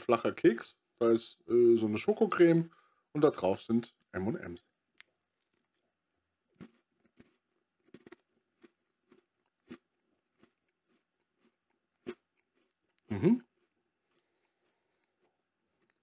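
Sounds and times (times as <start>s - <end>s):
person chewing biscuit: 4.8s - 16.0s
person's voice: 13.1s - 13.4s.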